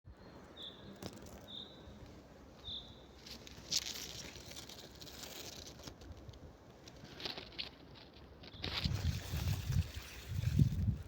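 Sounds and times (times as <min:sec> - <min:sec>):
small bird chirping: 0:00.1 - 0:02.0, 0:02.6 - 0:03.3
rustling and crackling: 0:03.2 - 0:11.0.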